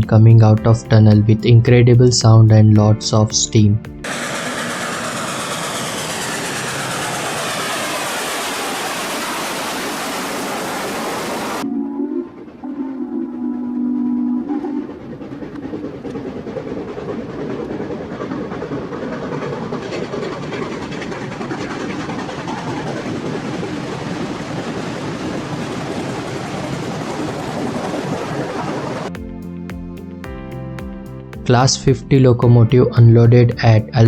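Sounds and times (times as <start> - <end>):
steam exhaust rushing: 0.0 - 30.2
steam locomotive whistle: 10.5 - 15.2.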